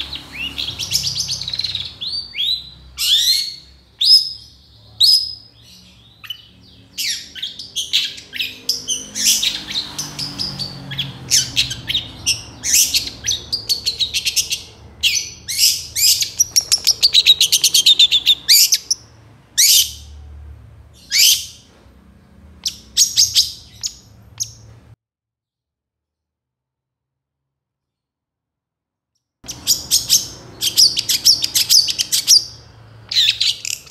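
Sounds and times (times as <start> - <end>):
shrike chattering song: 11.3 - 20.1.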